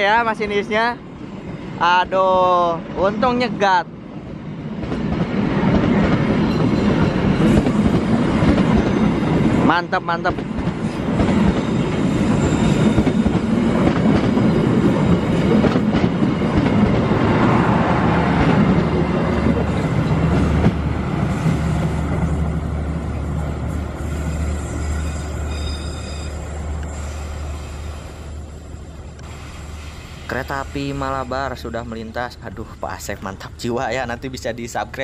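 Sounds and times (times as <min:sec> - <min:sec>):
train wheels clattering on rails: 0:04.7 - 0:28.4
high wheel squeal: 0:11.6 - 0:13.4, 0:24.2 - 0:31.6.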